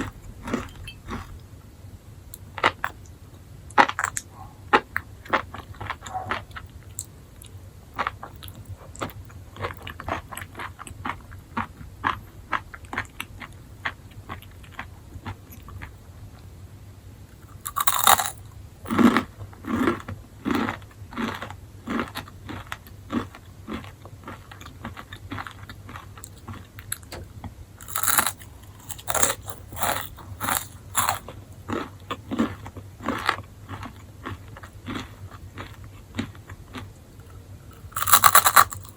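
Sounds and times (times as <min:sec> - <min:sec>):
crunchy bites: 0:00.0 - 0:01.5, 0:17.5 - 0:27.2, 0:27.8 - 0:38.9
faint low hum: 0:00.0 - 0:38.9
wet chewing: 0:27.8 - 0:38.9.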